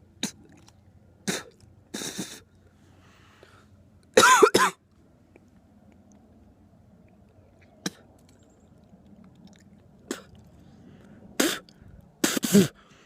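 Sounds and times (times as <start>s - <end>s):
person coughing: 4.2s - 4.8s, 12.2s - 12.8s.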